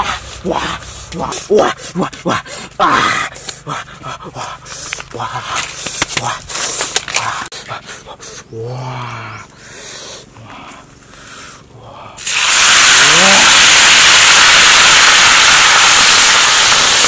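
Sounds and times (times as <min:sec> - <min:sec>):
food sizzling in hot pan: 0:12.2 - 0:17.0.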